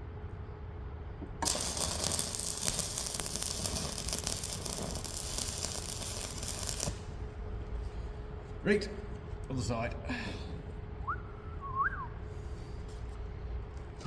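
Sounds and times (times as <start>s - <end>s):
welding arc crackling: 1.4s - 7.2s.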